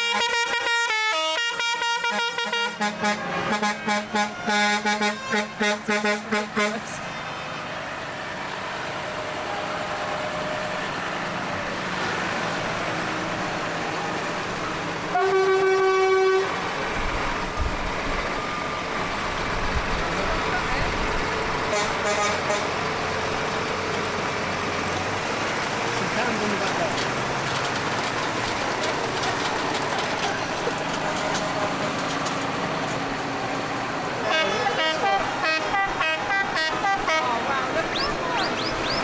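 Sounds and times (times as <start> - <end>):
long horn blast: 0.0 - 7.0, 15.1 - 16.8, 21.7 - 22.9, 34.2 - 37.8
musical vehicle horn: 0.0 - 7.0, 15.1 - 16.7, 21.7 - 22.8, 34.2 - 37.7
engines running: 2.3 - 39.0.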